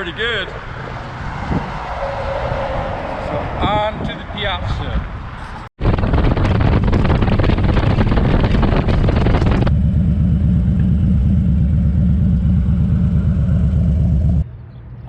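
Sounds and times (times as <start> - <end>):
wind noise on microphone: 1.3 - 9.8
motorcycle engine running: 5.9 - 14.4.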